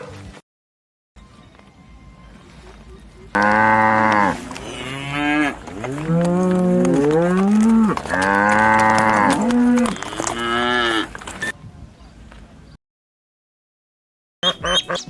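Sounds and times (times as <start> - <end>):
cattle mooing: 3.4 - 11.2.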